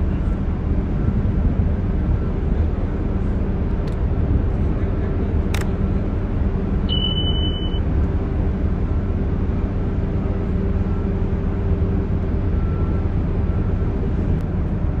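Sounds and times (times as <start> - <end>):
tugboat engine humming: 0.0 - 15.0
short high beep: 6.9 - 7.9.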